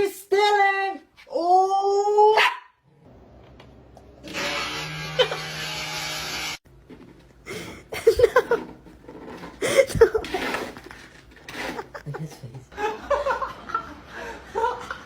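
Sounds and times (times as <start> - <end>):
person laughing: 7.5 - 8.7, 9.6 - 10.4, 11.5 - 15.0.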